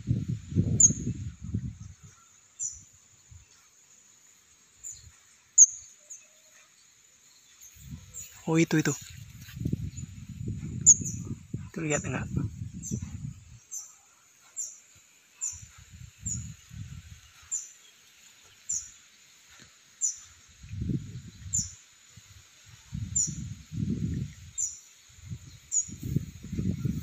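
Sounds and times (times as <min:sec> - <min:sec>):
young bird chirping: 0:00.7 - 0:01.1, 0:04.8 - 0:06.2, 0:09.8 - 0:11.4.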